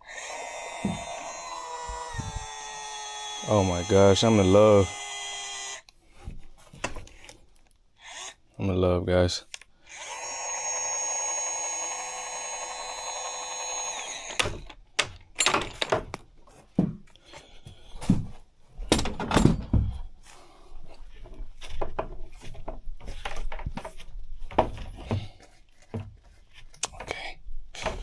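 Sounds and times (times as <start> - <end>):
power tool motor whining: 0.0 - 6.0, 8.0 - 8.4, 9.9 - 14.8
tools knocking and clunking: 6.2 - 7.4, 14.3 - 20.2, 20.9 - 28.0.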